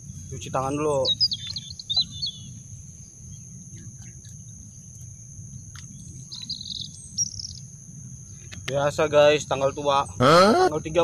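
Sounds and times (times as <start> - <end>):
bird twittering: 0.0 - 8.6
high-pitched insect drone: 0.0 - 11.0
low outdoor rumble: 0.0 - 11.0.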